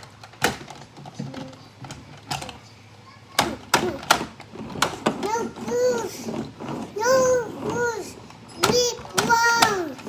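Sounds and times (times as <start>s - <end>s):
plastic toys knocking and clacking: 0.0s - 2.7s, 3.3s - 10.0s.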